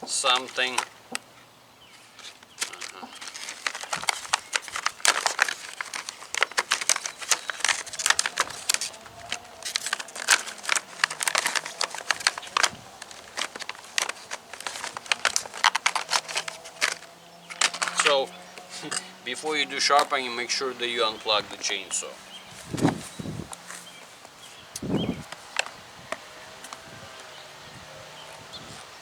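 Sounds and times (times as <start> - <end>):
packaging crinkling and rustling: 0.1 - 25.8
sharp clicks: 2.2 - 22.0.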